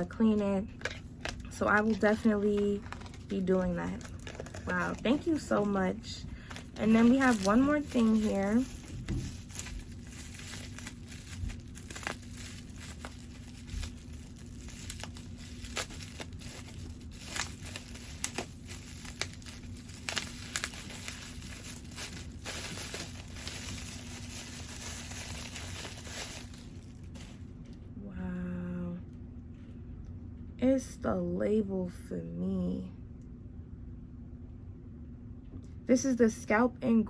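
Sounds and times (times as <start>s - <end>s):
steady low hum: 0.0s - 37.0s
packaging crinkling and tearing: 0.8s - 27.5s.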